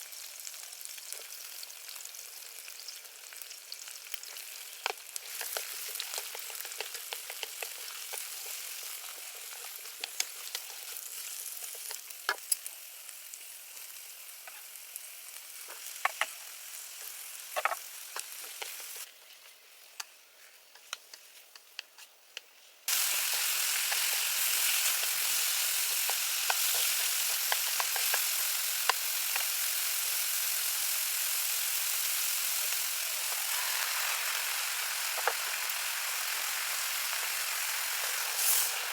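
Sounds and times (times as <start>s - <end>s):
food frying in hot oil: 0.0s - 20.5s, 22.9s - 38.9s.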